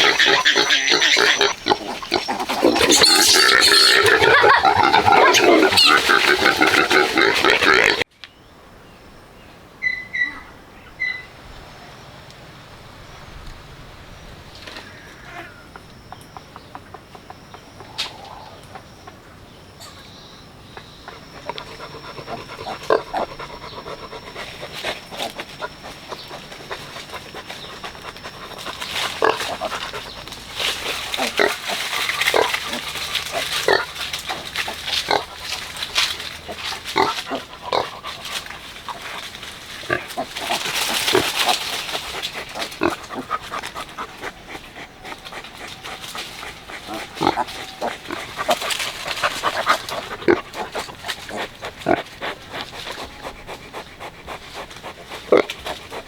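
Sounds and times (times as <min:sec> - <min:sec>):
piglets squealing: 0:00.0 - 0:08.0, 0:46.4 - 0:51.5
pigs grunting: 0:00.0 - 0:08.1, 0:21.0 - 0:56.0.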